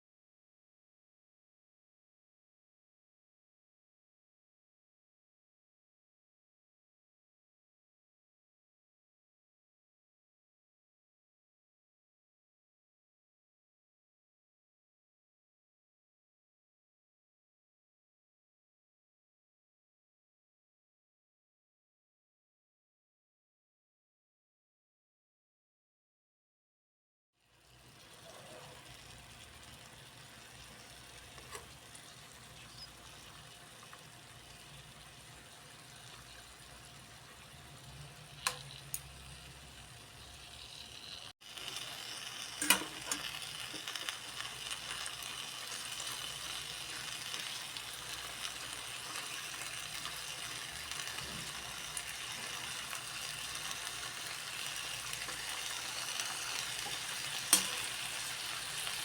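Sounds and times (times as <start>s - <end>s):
food sizzling in hot oil: 27.4s - 59.0s
utensil clicking against pan: 31.4s - 31.8s, 38.4s - 39.1s, 42.6s - 44.0s, 55.1s - 58.2s.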